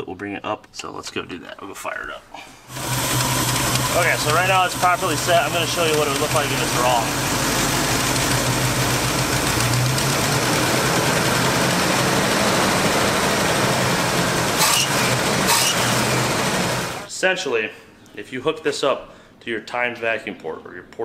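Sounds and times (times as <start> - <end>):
truck engine idling: 2.7 - 17.1.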